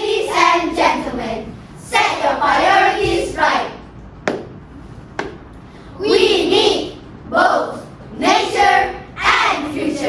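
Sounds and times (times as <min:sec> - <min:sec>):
sharp clap: 0:04.2 - 0:05.5.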